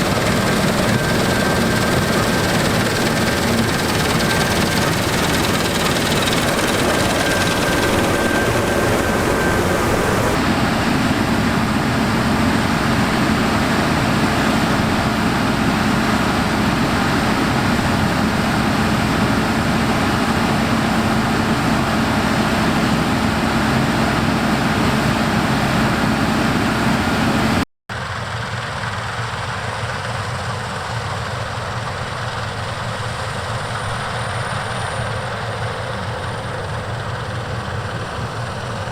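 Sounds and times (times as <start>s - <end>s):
heavy machinery diesel drone: 0.0s - 27.6s.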